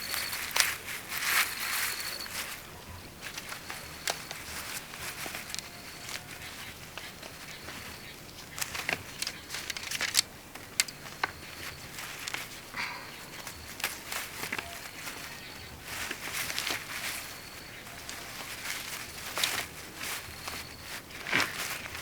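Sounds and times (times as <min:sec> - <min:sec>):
light crackling and rustling: 0:00.0 - 0:22.0.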